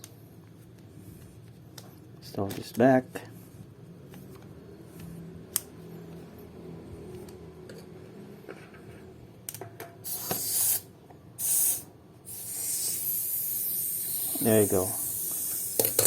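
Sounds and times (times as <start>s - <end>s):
air hissing from pump head: 10.0s - 16.0s.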